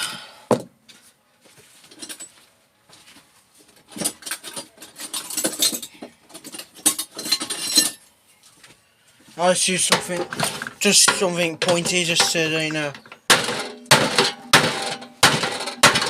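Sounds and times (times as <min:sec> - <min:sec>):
tool clicking and scraping plastic parts: 0:09.9 - 0:16.0.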